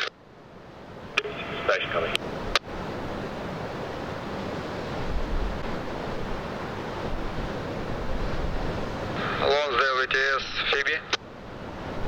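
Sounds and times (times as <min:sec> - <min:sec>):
ocean surf: 0:00.0 - 0:12.0
wind: 0:00.0 - 0:12.0
wind buffeting microphone: 0:00.4 - 0:09.5, 0:11.2 - 0:12.0.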